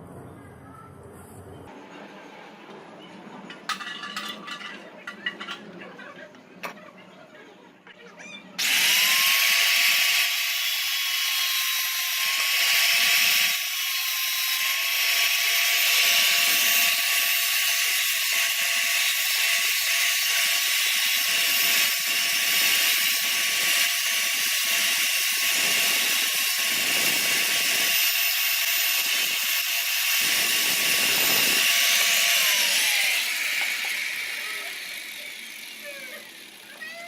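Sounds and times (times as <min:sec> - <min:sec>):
electric power tool whining: 0:08.6 - 0:37.0.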